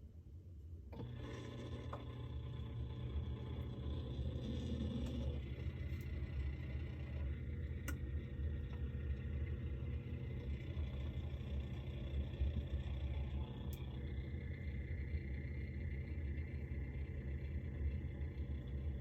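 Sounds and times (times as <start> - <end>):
refrigerator humming: 0.9 - 19.0.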